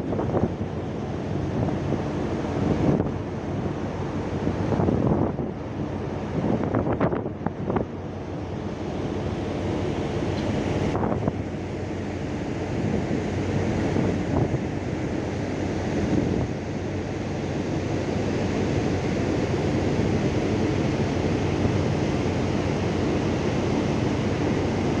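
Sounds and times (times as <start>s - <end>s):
open sea rushing: 0.0s - 25.0s
wind buffeting microphone: 9.2s - 11.6s.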